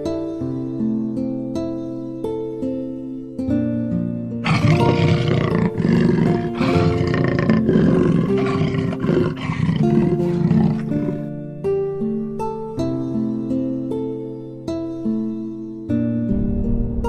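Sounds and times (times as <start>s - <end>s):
soft background music: 0.0s - 17.0s
wild animal calling: 4.4s - 11.3s.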